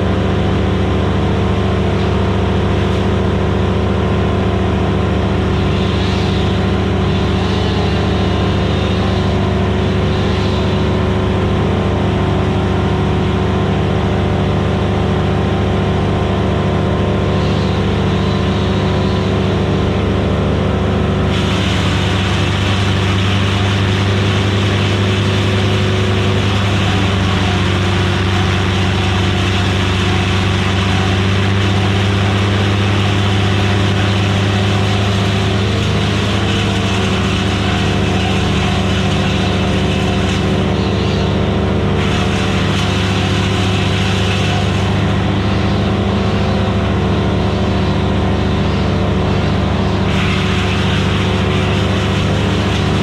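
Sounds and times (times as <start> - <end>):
wood chipper running: 0.0 - 53.0
loud hiss: 21.3 - 40.7, 42.0 - 45.4, 50.1 - 53.0.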